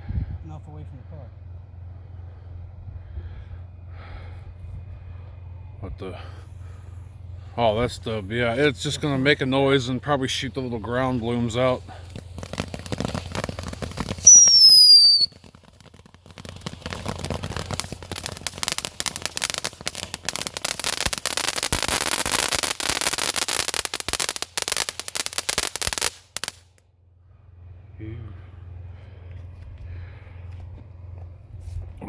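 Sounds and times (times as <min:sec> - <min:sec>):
firework crackling and hissing: 0:06.1 - 0:26.8
firework whistle falling in pitch: 0:14.2 - 0:15.4.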